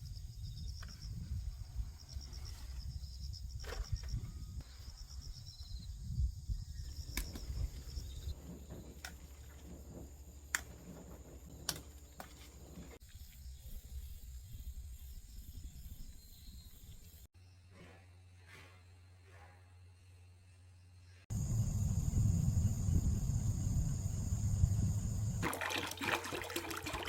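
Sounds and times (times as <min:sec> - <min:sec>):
insects chirping in pulses: 0:20.0 - 0:25.4
low rumble: 0:21.3 - 0:25.4.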